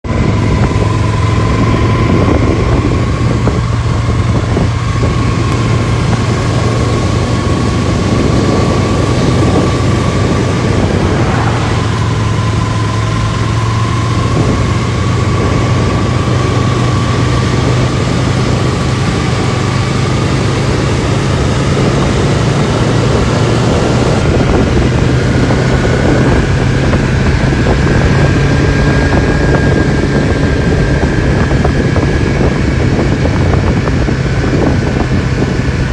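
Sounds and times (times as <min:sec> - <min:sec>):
vehicle engine hum: 0:00.0 - 0:35.9
thin whine climbing in pitch: 0:00.1 - 0:33.8
loud rushing noise: 0:04.8 - 0:25.0.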